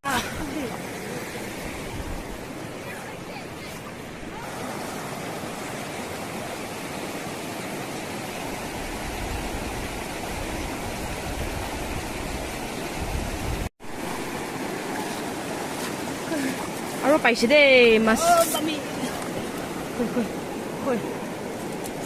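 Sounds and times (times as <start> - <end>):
river water rushing: 0.0 - 22.0
wind rumble on microphone: 8.6 - 13.7.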